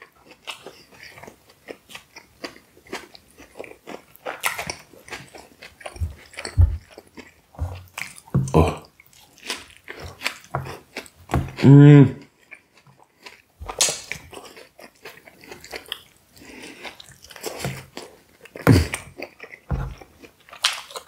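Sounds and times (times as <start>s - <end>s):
wet chewing clicks: 0.0s - 21.0s
low thumps: 6.0s - 6.8s.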